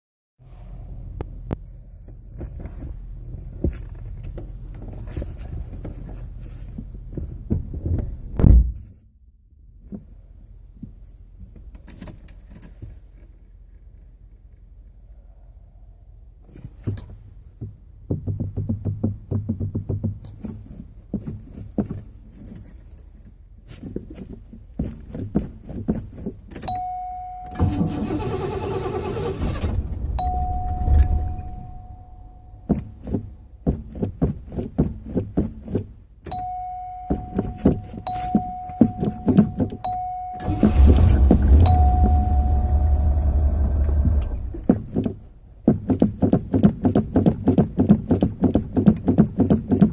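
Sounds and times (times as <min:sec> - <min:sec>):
car engine starting: 0:27.6 - 0:32.5, 0:40.3 - 0:45.4.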